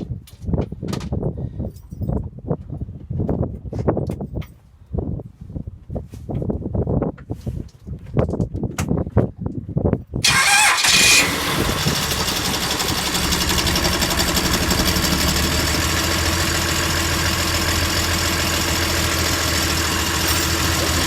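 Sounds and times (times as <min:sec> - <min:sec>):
boat diesel engine idling: 0:10.2 - 0:21.0.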